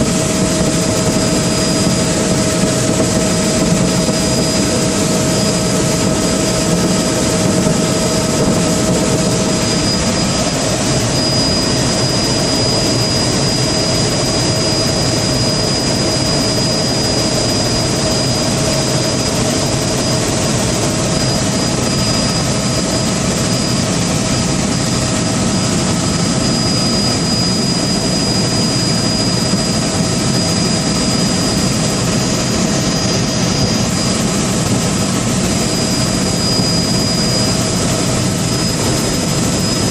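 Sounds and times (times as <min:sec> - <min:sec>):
engine drone with whining tones: 0:00.0 - 0:39.9.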